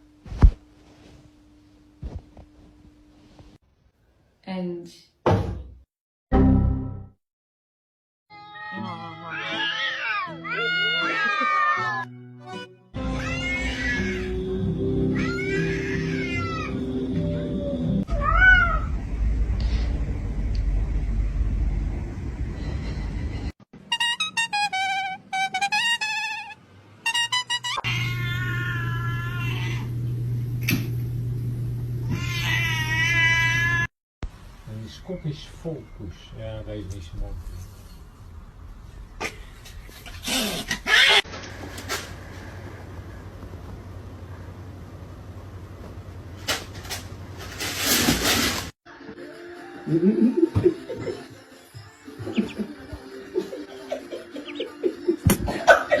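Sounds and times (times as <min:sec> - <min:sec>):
cat meowing: 0:08.3 - 0:12.0, 0:18.1 - 0:18.9, 0:27.8 - 0:29.9, 0:32.1 - 0:33.9
steady low hum: 0:18.8 - 0:23.5.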